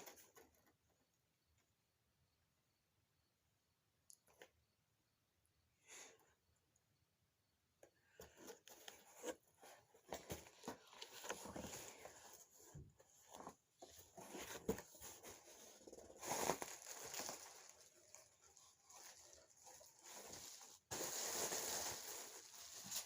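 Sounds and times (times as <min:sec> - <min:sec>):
packaging crinkling and tearing: 0:15.9 - 0:23.0.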